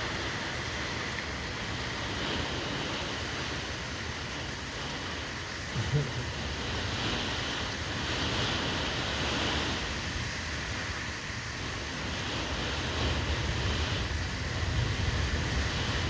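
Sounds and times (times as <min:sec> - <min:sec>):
strong gusting wind: 0:05.6 - 0:16.0.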